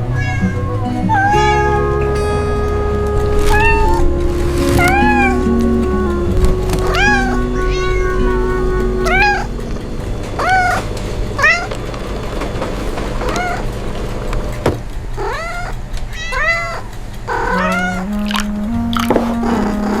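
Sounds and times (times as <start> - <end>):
cat meowing: 0.1 - 2.0, 3.4 - 4.1, 4.8 - 5.6, 6.8 - 8.3, 9.0 - 9.5, 10.4 - 11.7, 13.2 - 13.7, 15.2 - 18.4.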